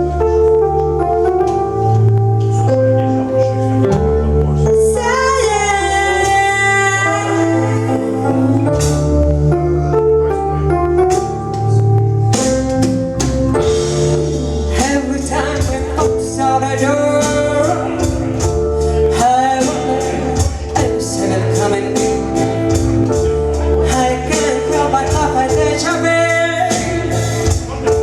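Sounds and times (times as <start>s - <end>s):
sustained instrumental notes: 0.0s - 28.0s
person singing: 2.4s - 12.0s, 13.6s - 28.0s
percussion beat: 17.1s - 28.0s.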